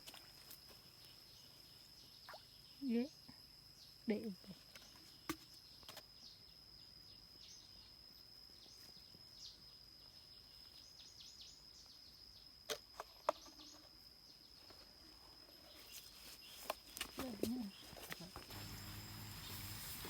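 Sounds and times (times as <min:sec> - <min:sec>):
small chirps: 0:00.0 - 0:03.4.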